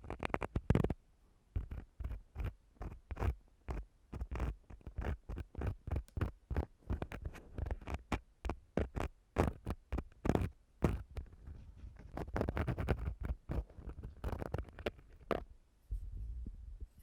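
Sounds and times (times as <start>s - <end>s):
tool scraping a microphone: 0.0s - 1.0s, 1.6s - 16.1s
low rumbling: 15.9s - 17.0s.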